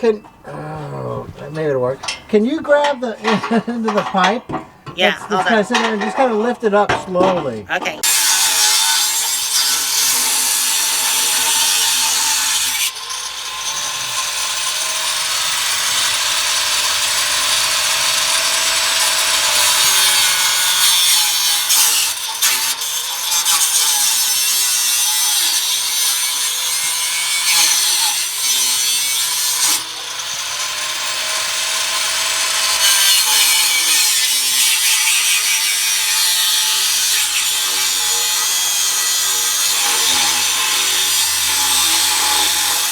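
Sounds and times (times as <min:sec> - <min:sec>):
power saw cutting steel pipe: 0:00.0 - 0:07.1, 0:07.8 - 0:42.9.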